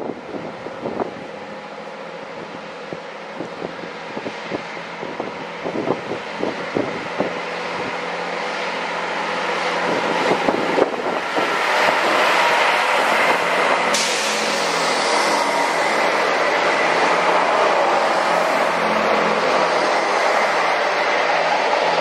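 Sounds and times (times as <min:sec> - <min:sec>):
train running past: 0:00.0 - 0:22.0
steady whine: 0:07.5 - 0:22.0.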